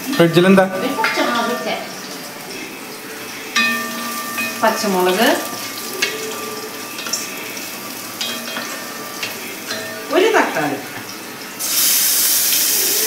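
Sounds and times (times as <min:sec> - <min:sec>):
onions sizzling in hot oil: 0:00.0 - 0:13.0
wooden spatula knocking brass pan: 0:03.6 - 0:11.1.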